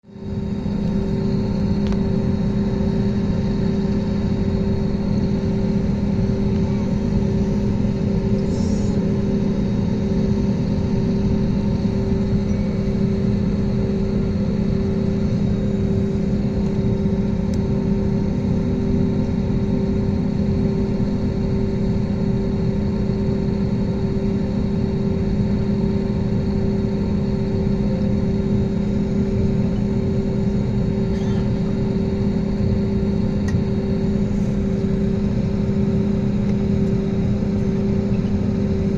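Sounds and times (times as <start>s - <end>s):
jet engine rumble in cabin: 0.0s - 38.9s.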